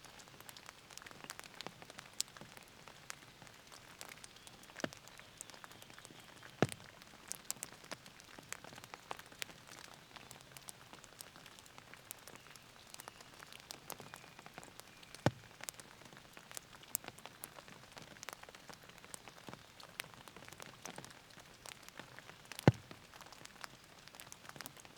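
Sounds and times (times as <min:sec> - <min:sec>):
rain pattering: 0:00.0 - 0:24.9
raindrops tapping: 0:00.2 - 0:24.9.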